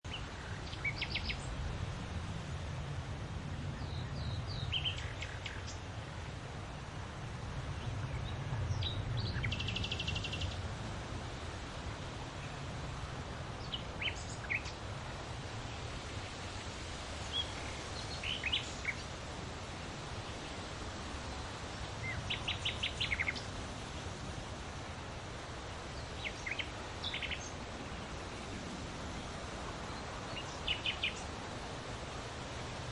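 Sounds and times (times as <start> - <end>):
small birds chirping: 0.0 - 1.6, 3.6 - 6.3, 7.7 - 10.7, 13.5 - 14.9, 15.6 - 20.7, 22.0 - 24.2, 25.2 - 31.8
wind with low rumble: 0.0 - 32.9.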